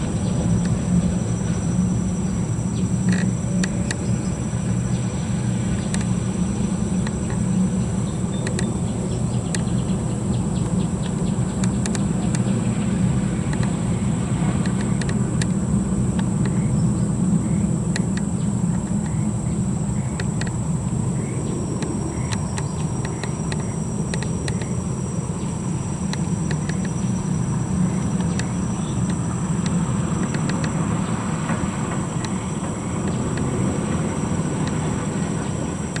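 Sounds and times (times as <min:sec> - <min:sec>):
diesel truck engine rumbling: 0:00.0 - 0:36.0
insects whining: 0:00.0 - 0:36.0
short chirps and ticks: 0:05.7 - 0:06.2, 0:08.1 - 0:09.9, 0:13.5 - 0:13.8, 0:21.2 - 0:30.8.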